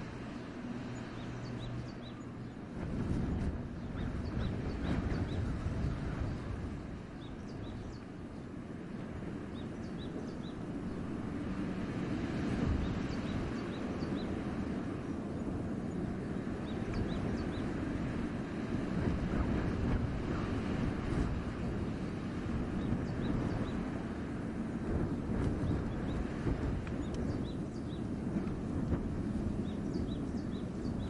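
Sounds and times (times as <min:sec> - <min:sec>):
wind rushing through trees: 0:00.0 - 0:31.0
small birds chirping: 0:00.3 - 0:02.8, 0:07.1 - 0:08.6, 0:09.5 - 0:11.0, 0:12.8 - 0:17.8, 0:22.8 - 0:24.0, 0:25.0 - 0:28.2, 0:29.5 - 0:31.0.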